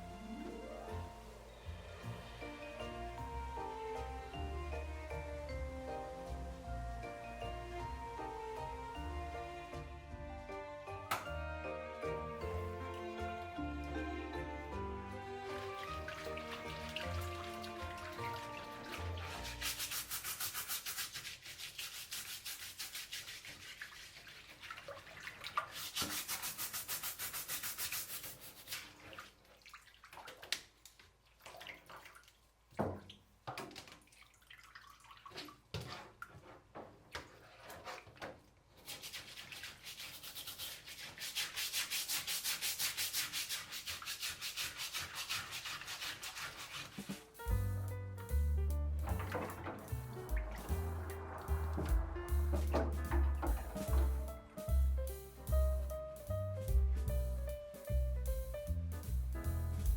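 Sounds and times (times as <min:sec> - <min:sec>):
brush scrubbing a surface: 0:15.4 - 0:29.3, 0:35.3 - 0:47.7, 0:49.3 - 0:54.8
sharp knocks: 0:49.1 - 0:54.9.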